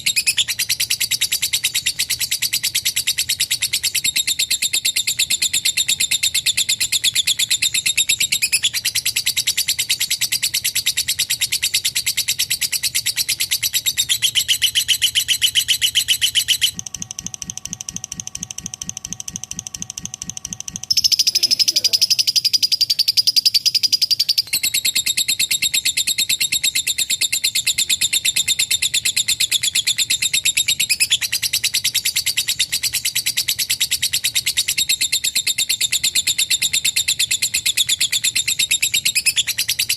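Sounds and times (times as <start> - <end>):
lovebird chattering trill: 0.0 - 39.9.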